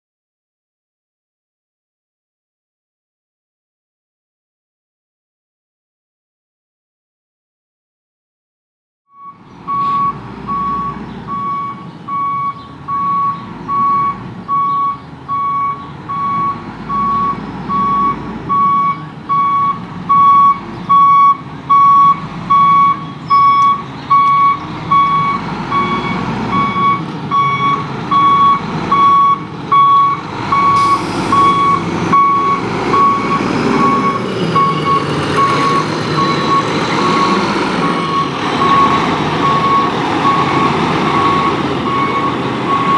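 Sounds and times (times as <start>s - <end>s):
backup alarm beeping: 9.2s - 42.9s
diesel engine running: 9.2s - 42.9s
hiss: 30.8s - 31.7s.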